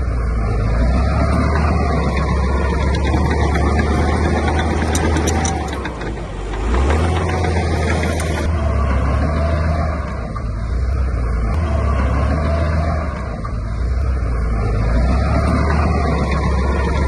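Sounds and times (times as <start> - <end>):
diesel engine droning under load: 0.0 - 17.0
sharp clicks: 0.7 - 8.5.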